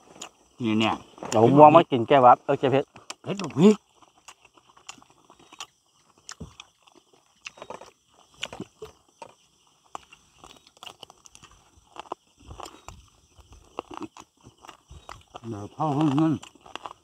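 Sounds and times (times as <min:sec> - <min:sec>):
food crunching while chewing: 0:00.0 - 0:01.8, 0:02.8 - 0:17.0.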